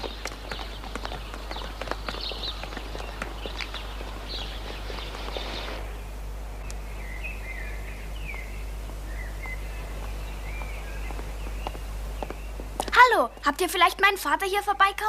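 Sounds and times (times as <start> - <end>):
hissing clicking rustle: 0.0 - 5.9
birds twittering: 0.0 - 13.9
steady low hum: 0.0 - 15.0.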